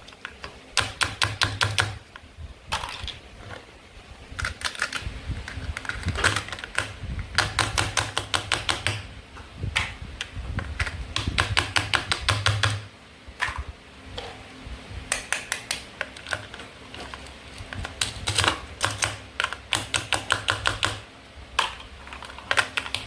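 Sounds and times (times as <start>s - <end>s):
rapid sharp clicks: 4.4s - 9.1s, 10.8s - 12.9s, 17.9s - 21.1s, 22.4s - 23.0s.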